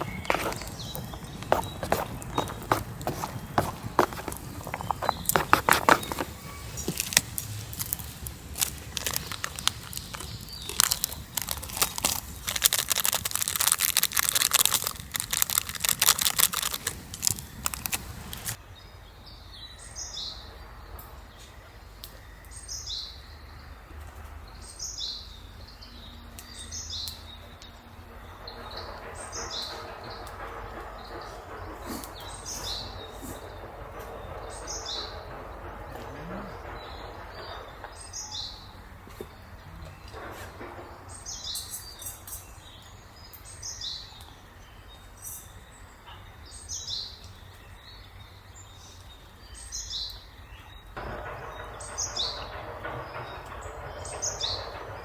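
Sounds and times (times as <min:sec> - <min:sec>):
dense crackling and clicking: 0:00.0 - 0:18.6, 0:28.2 - 0:41.1, 0:51.0 - 0:55.0
forest background: 0:00.0 - 0:55.0.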